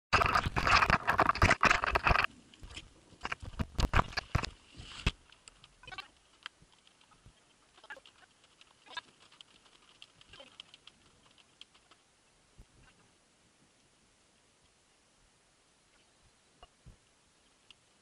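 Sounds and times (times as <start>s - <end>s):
raindrops pattering: 0.2s - 12.2s.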